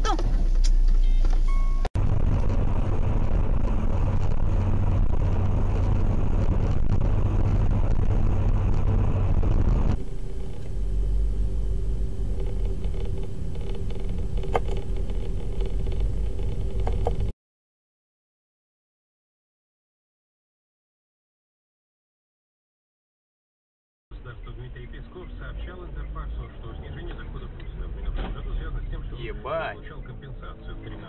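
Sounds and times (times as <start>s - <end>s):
car engine and road noise: 0.0s - 17.4s, 24.1s - 31.0s.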